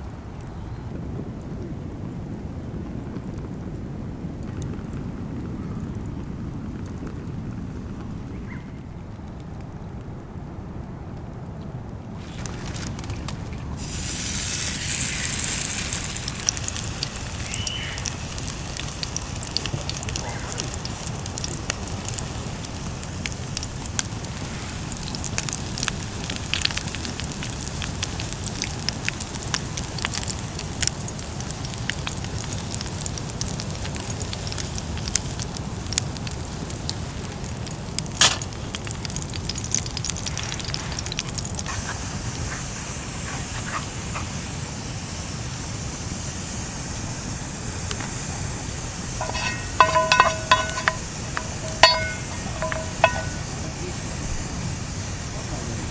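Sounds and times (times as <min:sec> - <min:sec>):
campfire crackling: 0:00.0 - 0:55.9
sharp crack of fire: 0:11.1 - 0:55.9
ringing metallic clinks: 0:49.2 - 0:53.5.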